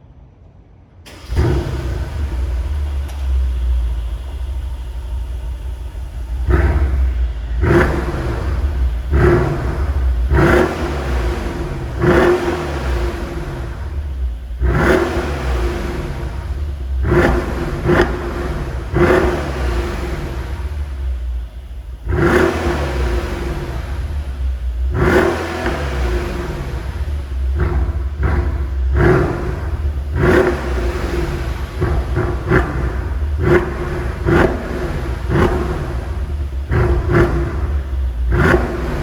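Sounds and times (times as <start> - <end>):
car engine starting: 0.4 - 39.0
loud engine idle: 0.5 - 39.0
engine revving: 1.1 - 39.0.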